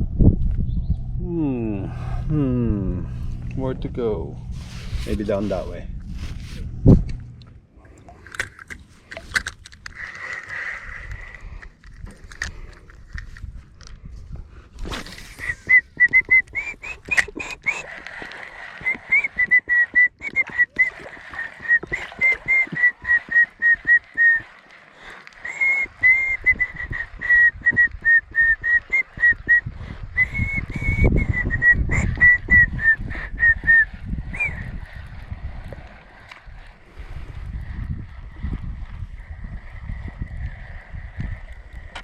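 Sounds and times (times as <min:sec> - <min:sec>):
person whistling a tune: 0:15.4 - 0:17.9, 0:18.8 - 0:24.4, 0:25.4 - 0:34.7.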